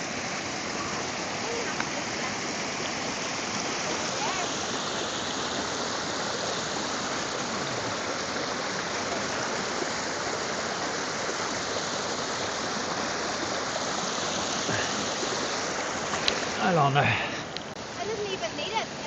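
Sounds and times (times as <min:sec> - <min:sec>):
stream rushing: 0:00.0 - 0:19.0.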